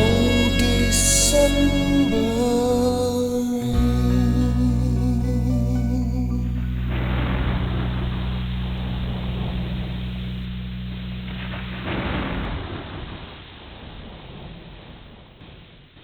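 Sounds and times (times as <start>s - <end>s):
band holding low chord: 0.0s - 12.5s.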